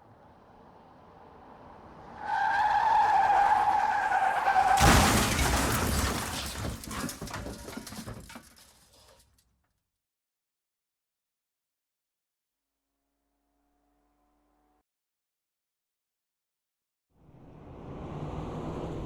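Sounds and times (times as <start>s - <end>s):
tyres squealing: 2.2s - 5.5s
loud crash: 4.4s - 9.2s
debris rattling and clattering: 4.6s - 9.4s.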